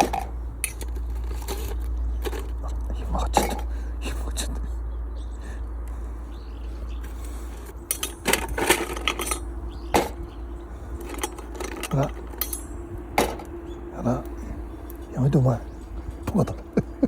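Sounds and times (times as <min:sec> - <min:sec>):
hard objects clinking: 0:00.0 - 0:03.7, 0:07.6 - 0:10.2, 0:11.0 - 0:13.5
low hum: 0:00.0 - 0:17.0.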